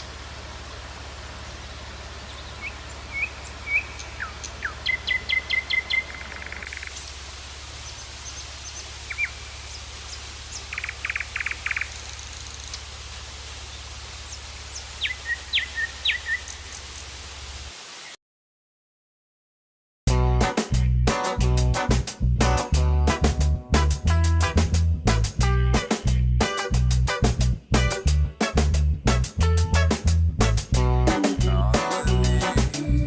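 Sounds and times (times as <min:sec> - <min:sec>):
birds chirping: 0:01.4 - 0:12.9, 0:13.6 - 0:17.1.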